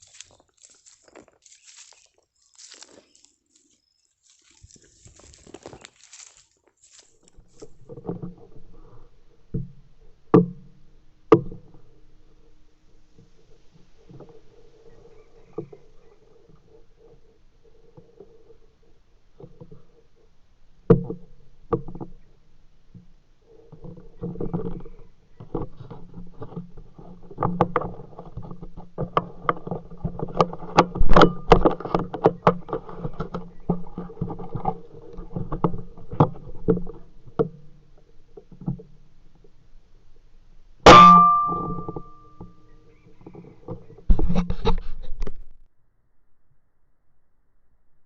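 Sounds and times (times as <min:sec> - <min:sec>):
sharp loud crack with metallic ringing: 0:40.9 - 0:41.8.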